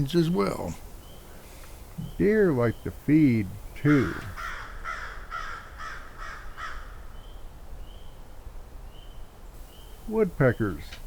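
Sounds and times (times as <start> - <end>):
crow cawing: 3.8 - 7.1.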